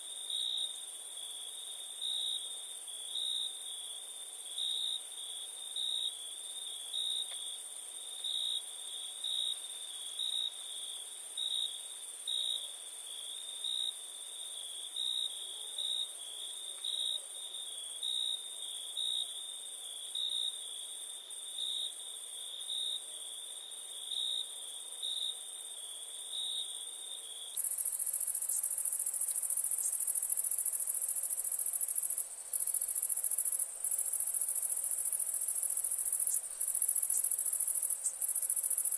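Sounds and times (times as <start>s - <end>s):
cricket chirping in pulses: 27.2s - 38.9s
high-pitched insect trill: 27.6s - 38.9s.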